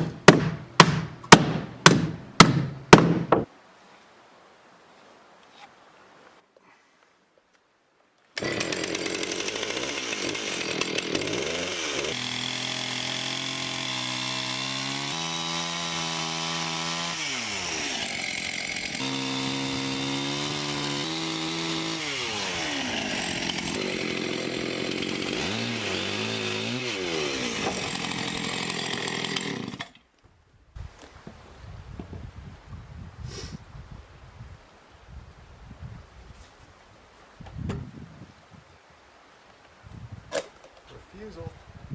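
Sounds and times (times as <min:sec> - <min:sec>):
gas saw cutting wood: 0:08.4 - 0:30.0.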